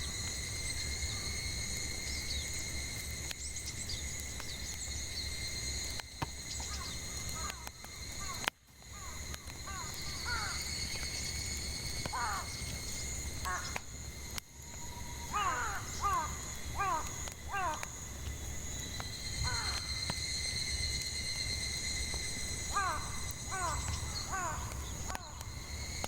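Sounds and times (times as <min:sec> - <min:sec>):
burning firewood popping: 0:00.0 - 0:26.0
cicadas droning: 0:00.0 - 0:26.0
crows cawing: 0:06.7 - 0:10.7, 0:12.1 - 0:12.6, 0:13.4 - 0:13.8, 0:15.3 - 0:17.9, 0:19.4 - 0:19.9, 0:22.7 - 0:25.5.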